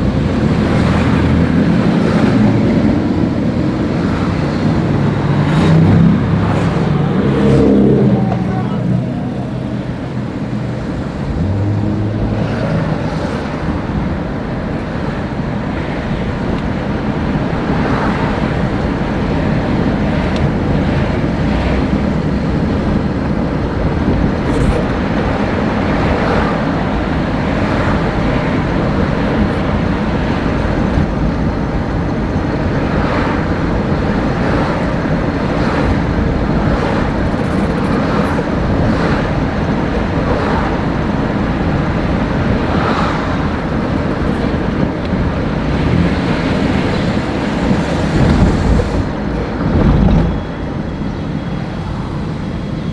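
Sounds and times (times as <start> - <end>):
car engine and tyre rumble: 0.0 - 52.9.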